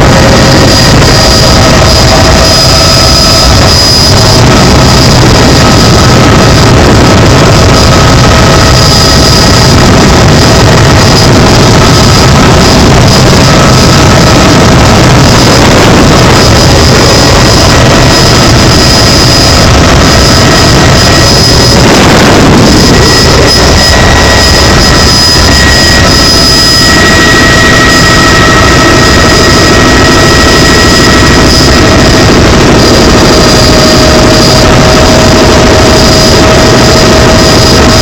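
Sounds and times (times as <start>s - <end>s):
helicopter turbine and rotor noise: 0.0s - 38.0s
high steady whining tones: 0.0s - 38.0s.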